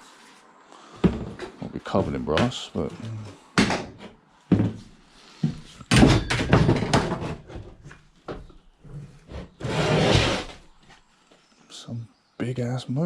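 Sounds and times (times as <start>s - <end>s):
metal scraping: 9.6s - 10.6s.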